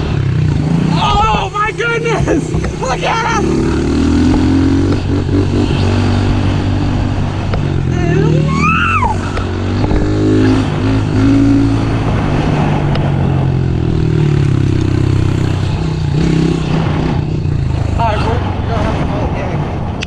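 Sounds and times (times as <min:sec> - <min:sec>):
high tone rising and falling: 0:07.9 - 0:10.6.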